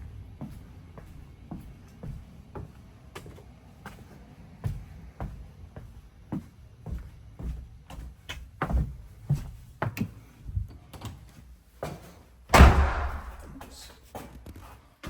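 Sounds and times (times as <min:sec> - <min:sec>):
door shutting with thump: 0:12.5 - 0:13.6.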